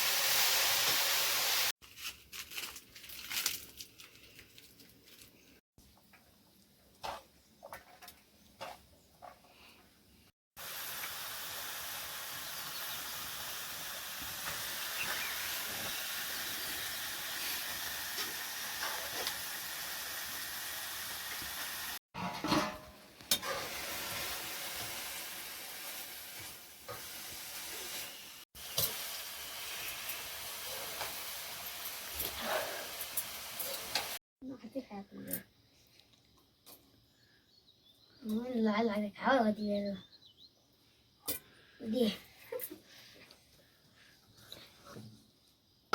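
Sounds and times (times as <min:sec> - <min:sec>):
food sizzling in a pan: 0:00.0 - 0:01.7, 0:10.6 - 0:22.0, 0:23.3 - 0:34.2.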